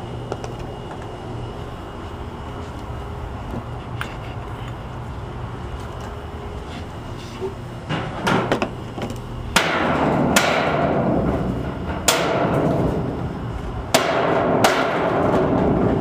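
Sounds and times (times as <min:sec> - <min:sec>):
hammer striking metal roof panel: 0:09.5 - 0:13.2, 0:13.9 - 0:16.0.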